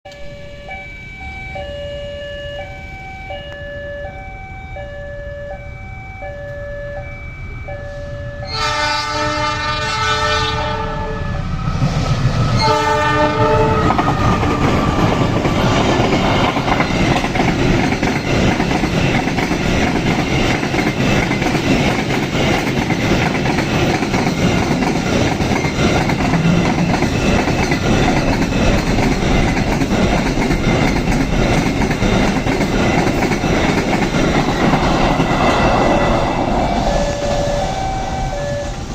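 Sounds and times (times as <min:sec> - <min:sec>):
two-tone warning alarm: 0:00.1 - 0:11.6, 0:31.8 - 0:38.9
train rumble passing: 0:07.0 - 0:38.9
train horn blasts: 0:08.4 - 0:11.4, 0:12.6 - 0:14.3
wheels clacking over rail joints: 0:13.7 - 0:37.1.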